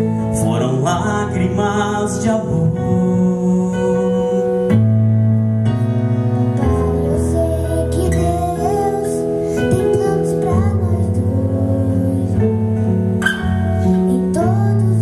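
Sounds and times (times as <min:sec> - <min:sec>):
bass notes: 0:00.0 - 0:15.0
keyboard chords: 0:00.0 - 0:15.0
sliding melodic lead line: 0:00.0 - 0:15.0.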